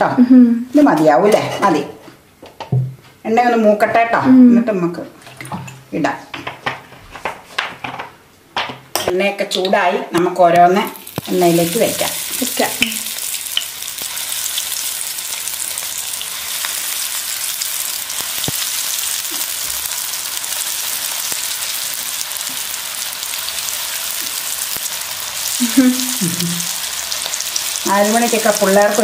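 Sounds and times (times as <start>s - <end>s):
food sizzling in hot oil: 10.9s - 29.0s.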